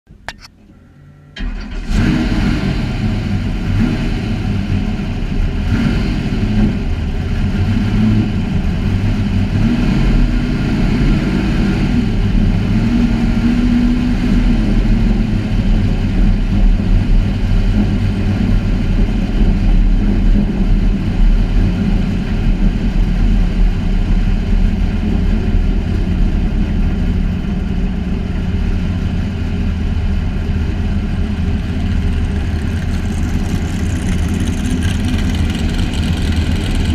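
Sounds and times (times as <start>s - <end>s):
truck engine idling: 14.9s - 36.9s.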